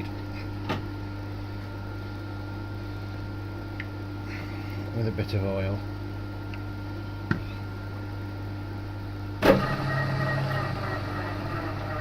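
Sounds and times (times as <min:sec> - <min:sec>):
milling machine running: 0:09.4 - 0:12.0.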